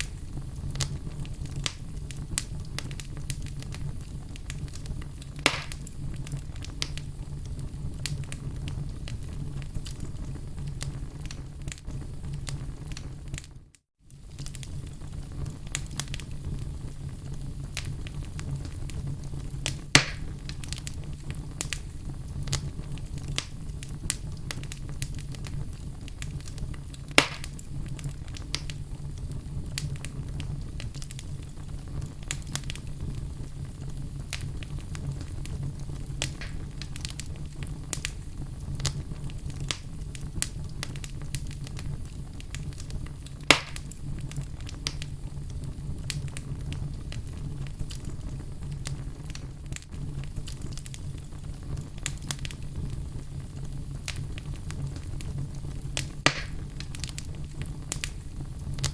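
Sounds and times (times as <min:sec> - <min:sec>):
wood fire crackling: 0:00.0 - 0:58.9
sharp loud fire pops: 0:05.4 - 0:05.9, 0:19.9 - 0:20.4, 0:27.1 - 0:27.6, 0:36.2 - 0:36.9, 0:43.5 - 0:43.9, 0:56.2 - 0:56.8.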